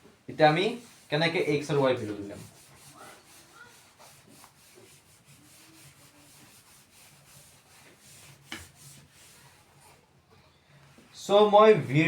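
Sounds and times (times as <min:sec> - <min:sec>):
scratching writing strokes: 0:00.4 - 0:10.0.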